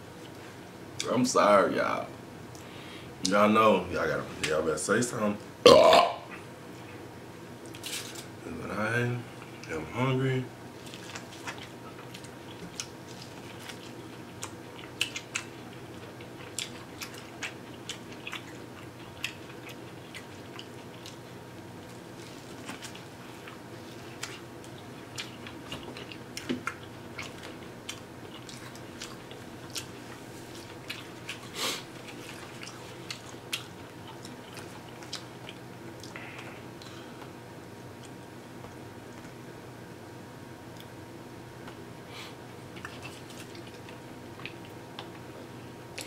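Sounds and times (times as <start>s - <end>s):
faint steady hum: 0.0s - 46.0s
person chewing corn: 10.8s - 37.1s, 42.7s - 46.0s.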